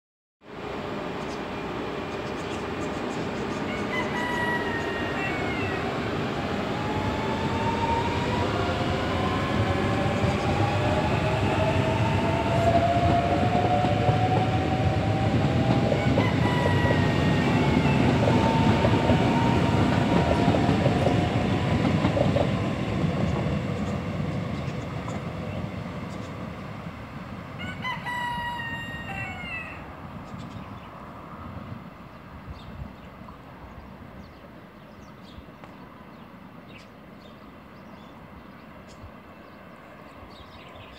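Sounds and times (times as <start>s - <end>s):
train wheels clattering on rails: 11.2s - 26.4s.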